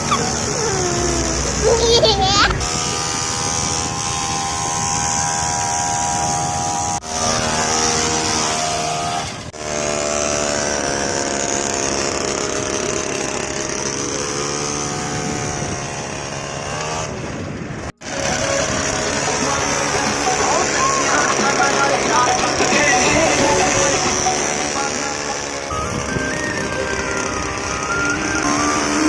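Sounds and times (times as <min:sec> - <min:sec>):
small motor buzzing drone: 0:00.0 - 0:29.0.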